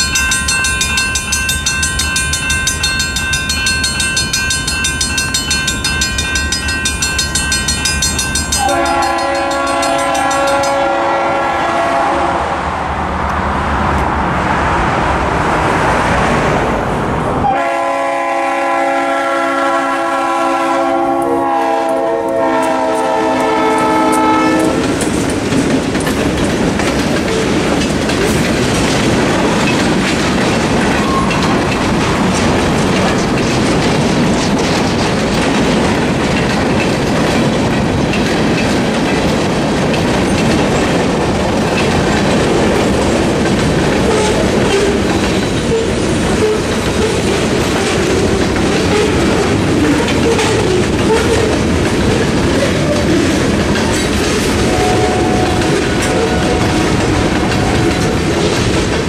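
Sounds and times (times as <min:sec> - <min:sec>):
railroad crossing bells ringing: 0:00.0 - 0:11.5, 0:17.5 - 0:34.5, 0:39.9 - 0:58.3
locomotive air horn: 0:08.6 - 0:12.6, 0:17.4 - 0:25.0, 0:54.6 - 0:58.0
freight cars rumbling and clattering: 0:23.0 - 0:59.0.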